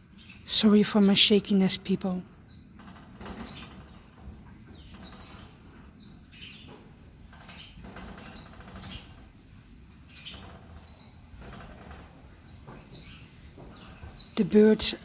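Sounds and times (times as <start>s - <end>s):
faint outdoor background noise: 0.0s - 15.0s
small birds chirping: 0.0s - 15.0s.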